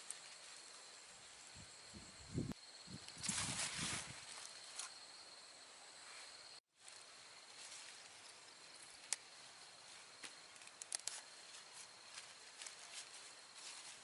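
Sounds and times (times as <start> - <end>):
high insect drone: 0.0 - 14.0
small sharp clicks: 10.5 - 11.2.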